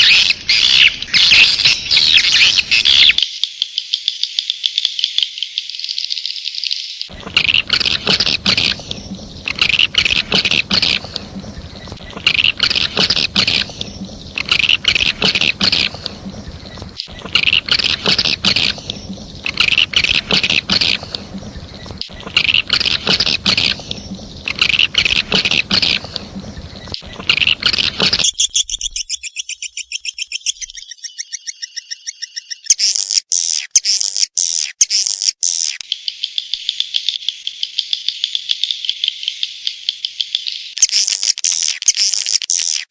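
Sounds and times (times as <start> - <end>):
rapid buzzing trills: 7.1 - 28.7
swiftlet chirping twitters: 7.1 - 33.7.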